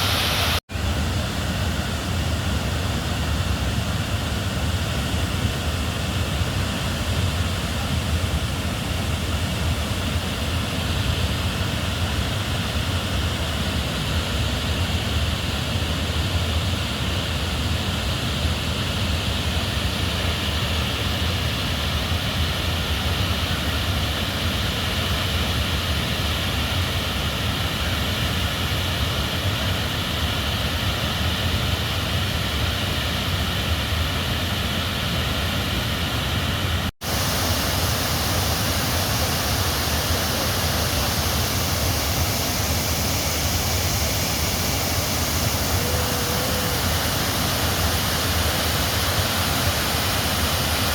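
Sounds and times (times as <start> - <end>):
river rushing: 0.0 - 4.1, 31.4 - 50.9.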